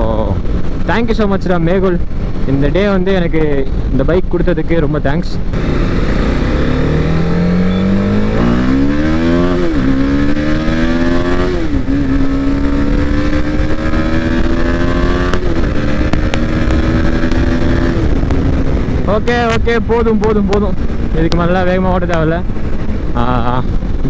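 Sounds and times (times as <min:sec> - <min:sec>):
motorcycle engine accelerating: 0:05.5 - 0:24.0.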